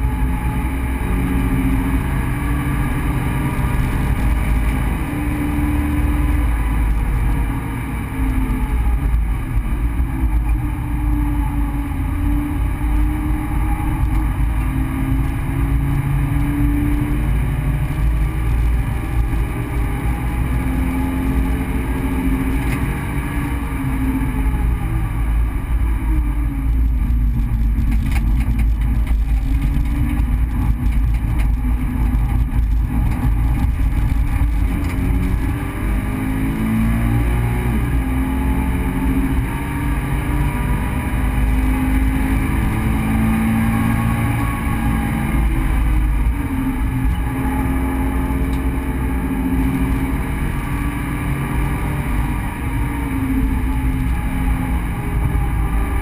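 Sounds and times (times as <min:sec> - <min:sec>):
road and wind noise rumble: 0:00.0 - 0:56.0
car engine revving from cabin: 0:31.6 - 0:56.0.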